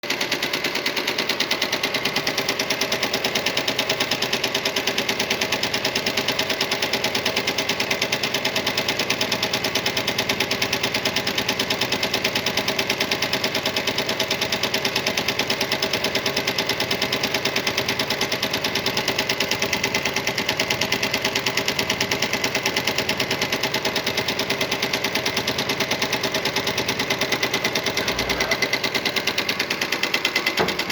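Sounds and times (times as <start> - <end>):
sewing machine stitching: 0.0 - 30.9.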